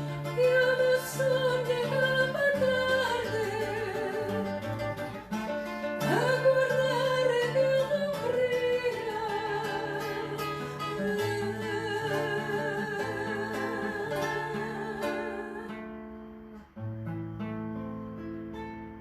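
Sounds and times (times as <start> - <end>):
person singing with vibrato: 0.0 - 4.8, 6.0 - 16.1
acoustic guitar chords: 0.0 - 19.0.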